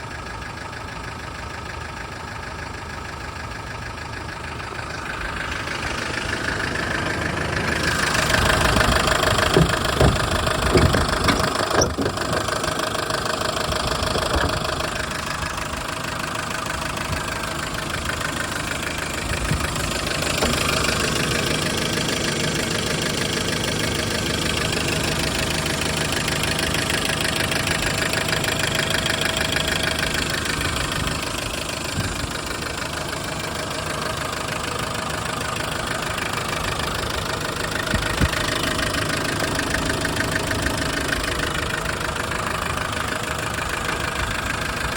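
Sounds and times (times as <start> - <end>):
sharp knocks: 8.8 - 12.5.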